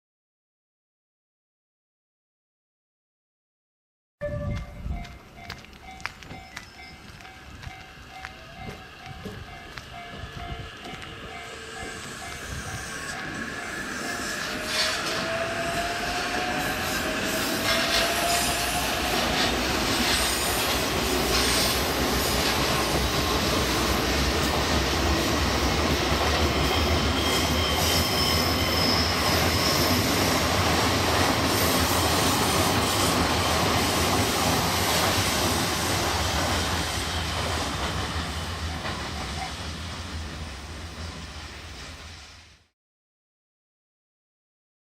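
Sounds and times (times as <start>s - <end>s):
electric train rumbling past: 4.2s - 42.7s
high wheel squeal: 11.3s - 23.4s, 26.3s - 30.6s.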